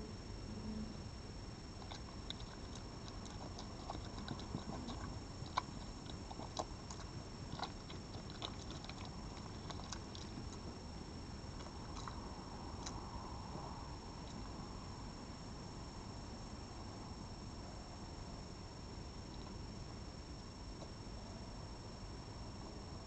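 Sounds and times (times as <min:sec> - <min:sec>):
faint high whine: 0:00.0 - 0:23.0
animal chewing and crunching food: 0:01.7 - 0:14.6, 0:19.1 - 0:19.8.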